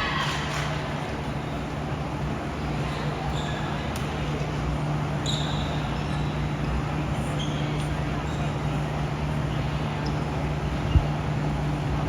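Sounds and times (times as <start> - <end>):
background murmur: 0.0 - 12.0.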